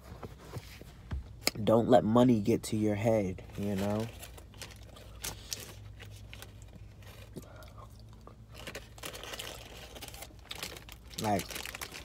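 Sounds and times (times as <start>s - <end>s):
person chewing and crunching food: 4.4s - 12.0s.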